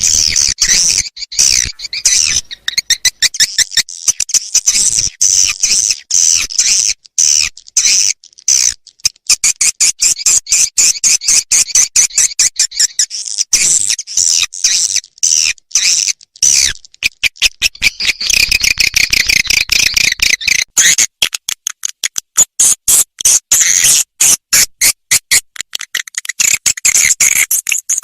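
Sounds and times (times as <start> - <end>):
swiftlet chirps and twitters: 0.0 - 8.7, 9.3 - 21.1.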